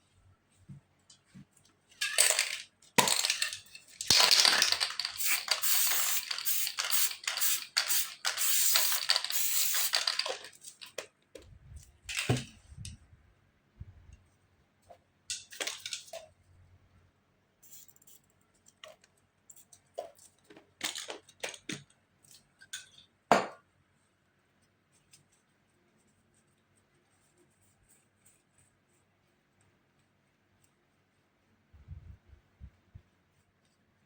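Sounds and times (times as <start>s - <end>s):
spray paint can hissing: 4.2s - 10.4s
spray can clicks: 5.2s - 10.2s.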